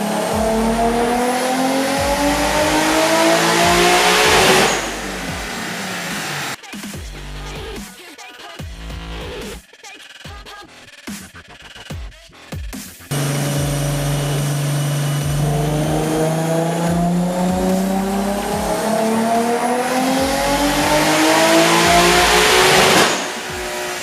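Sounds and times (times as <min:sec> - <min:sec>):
car engine revving on a dyno: 0:00.0 - 0:06.6, 0:13.1 - 0:24.0.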